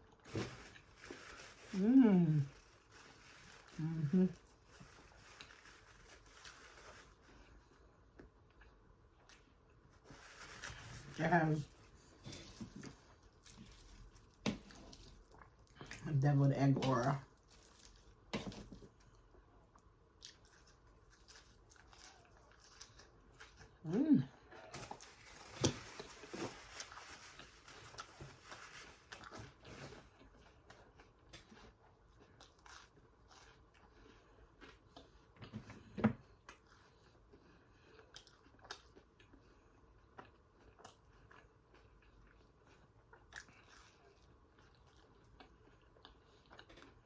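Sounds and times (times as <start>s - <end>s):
person chewing food: 11.8s - 16.0s, 17.3s - 47.0s.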